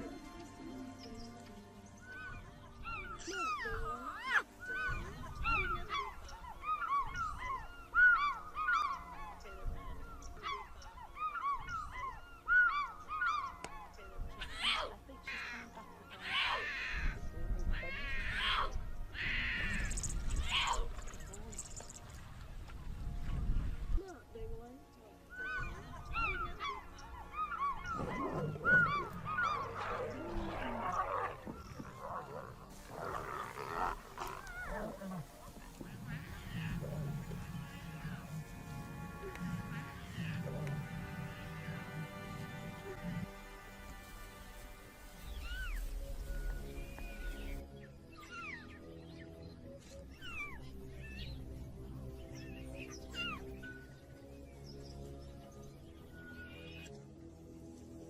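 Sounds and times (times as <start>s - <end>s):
animals honking and squealing: 2.0s - 21.0s, 25.2s - 48.8s, 50.1s - 54.0s
animals honking calls: 25.3s - 47.6s.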